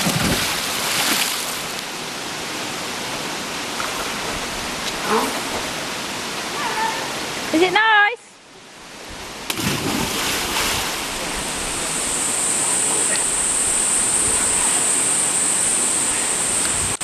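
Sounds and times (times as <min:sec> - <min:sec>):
waterfall rushing into pool: 0:09.4 - 0:17.0.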